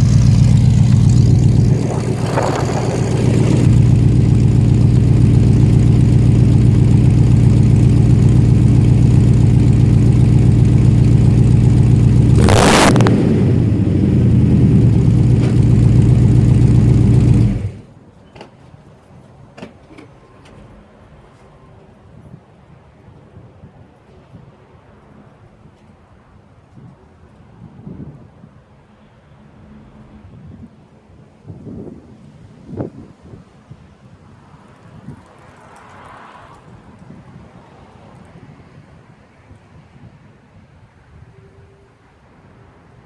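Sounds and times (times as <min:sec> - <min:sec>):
sharp burst: 0:00.0 - 0:05.6
pickup engine running loud: 0:00.0 - 0:17.9.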